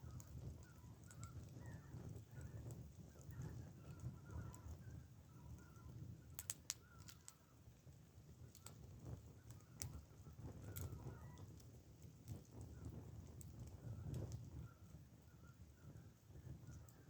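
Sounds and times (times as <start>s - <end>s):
campfire wood crackling: 0.0s - 14.6s
fire popping: 6.3s - 14.6s.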